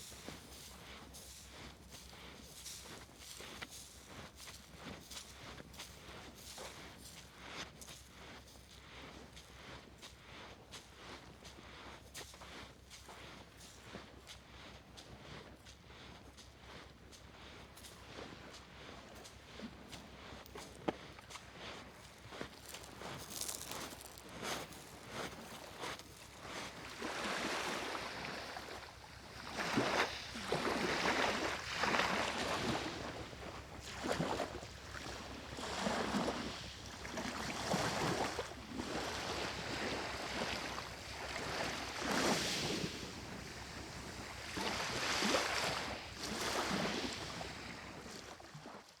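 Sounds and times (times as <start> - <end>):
small waves washing onto beach: 20.7 - 48.9.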